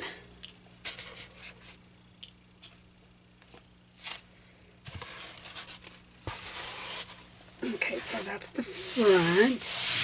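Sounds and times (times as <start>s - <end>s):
fabric rustling and scraping: 4.9s - 10.0s.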